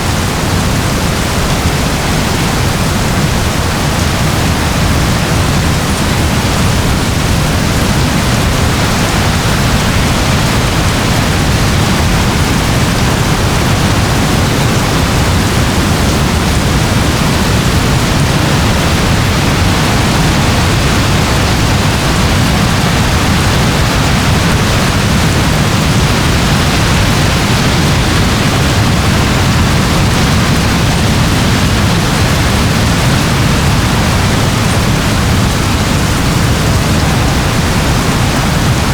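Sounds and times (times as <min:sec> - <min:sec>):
soft rain hiss: 0:00.0 - 0:38.9.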